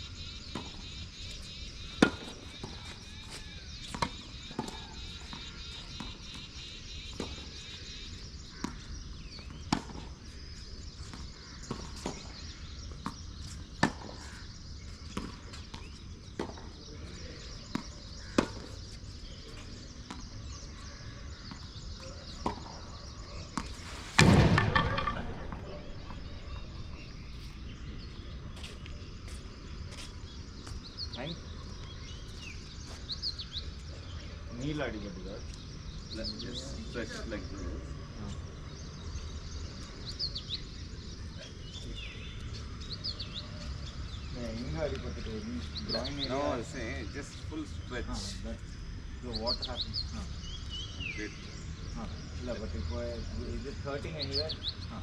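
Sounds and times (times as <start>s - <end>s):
tennis balls struck and bouncing: 0.4s - 14.3s, 14.9s - 27.2s
loud thud: 24.0s - 26.9s.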